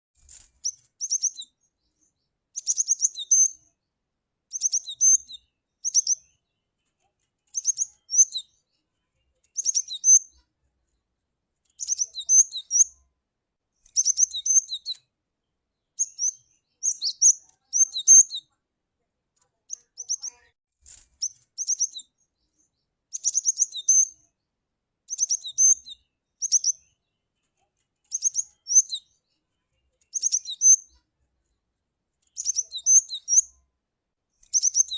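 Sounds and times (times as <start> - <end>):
bird chirping calls: 0.2 - 3.8, 4.5 - 10.5, 11.6 - 13.0, 13.8 - 15.1, 15.7 - 18.6, 19.6 - 24.4, 25.1 - 31.1, 32.2 - 33.6, 34.4 - 34.9.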